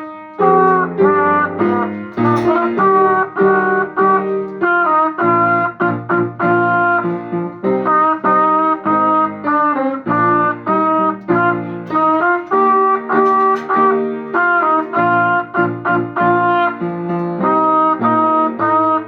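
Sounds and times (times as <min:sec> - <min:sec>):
lower accompaniment: 0:00.0 - 0:16.6
trumpet melody: 0:00.0 - 0:19.0.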